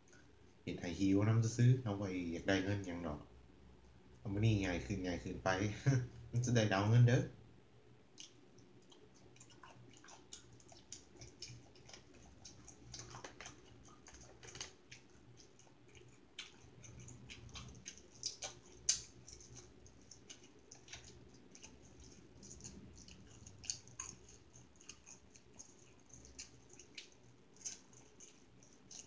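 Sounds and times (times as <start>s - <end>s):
person chewing food: 8.1s - 29.0s.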